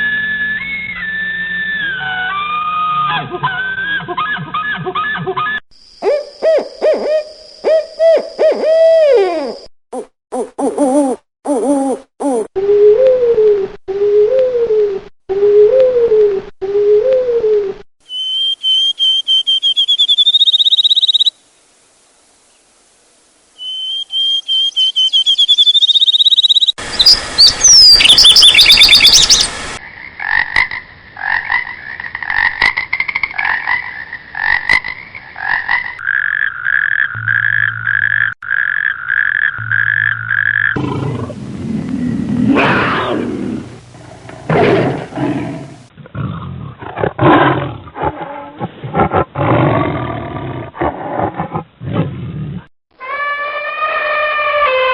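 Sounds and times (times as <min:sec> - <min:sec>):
rapid pulsed animal calls: 0:05.8 - 0:09.7, 0:18.1 - 0:21.3, 0:23.6 - 0:29.5
high rising chirping trill: 0:18.0 - 0:21.3, 0:23.6 - 0:29.6
deep roaring calls: 0:40.3 - 0:52.4.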